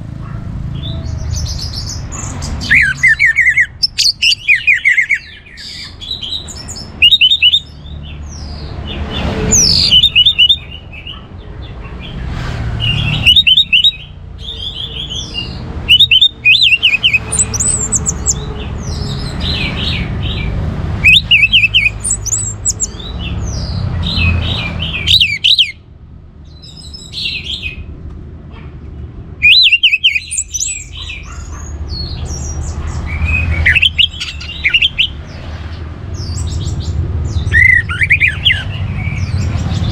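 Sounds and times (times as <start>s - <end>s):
thrush singing high twittering: 0.8s - 12.2s, 12.8s - 25.8s, 29.4s - 35.5s, 36.2s - 39.9s.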